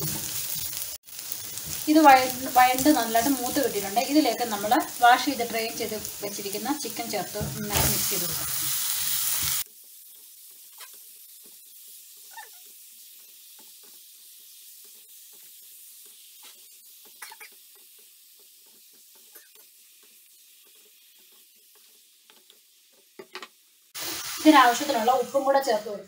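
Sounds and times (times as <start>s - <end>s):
chicken sizzling in oil: 0.0s - 26.0s.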